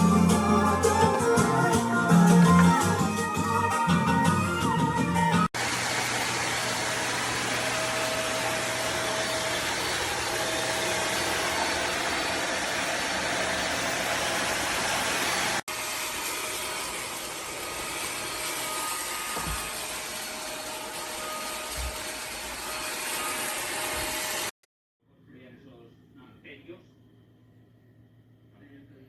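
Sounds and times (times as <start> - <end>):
vacuum motor whirring: 5.6 - 24.5.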